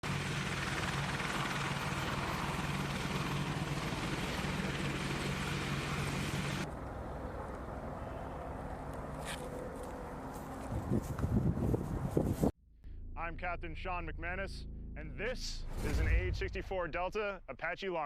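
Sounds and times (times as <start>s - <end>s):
helicopter rushing noise: 0.0s - 12.1s
low rumble: 12.8s - 17.5s.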